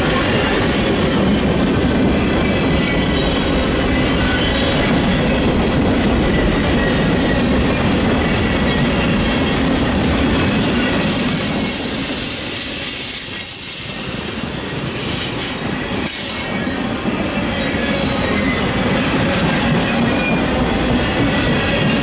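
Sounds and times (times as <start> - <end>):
freight wheels rumbling on rails: 15.7 - 22.0.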